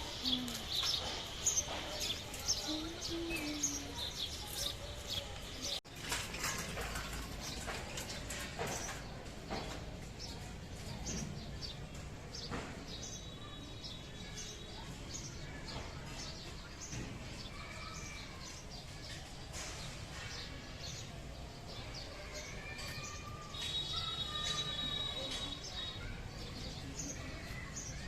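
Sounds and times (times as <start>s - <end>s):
birds chirping: 0.0s - 5.8s
whistled bird notes: 23.4s - 26.2s.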